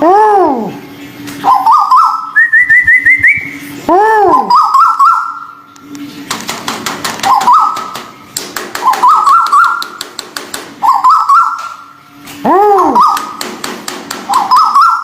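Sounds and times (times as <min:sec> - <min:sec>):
bird whistled calls: 0:01.4 - 0:05.7, 0:07.3 - 0:08.0, 0:08.8 - 0:10.0, 0:10.8 - 0:11.8, 0:12.9 - 0:13.4, 0:14.3 - 0:15.0
rapid sharp clicks: 0:05.8 - 0:10.7.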